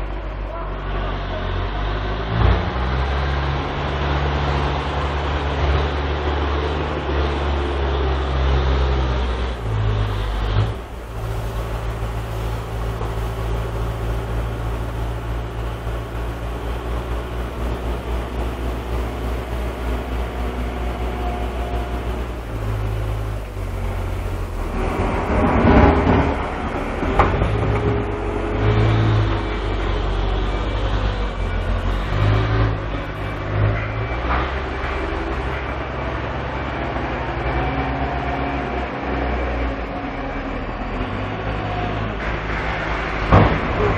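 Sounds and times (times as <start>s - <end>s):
heavy diesel machinery engines: 0.0s - 43.9s.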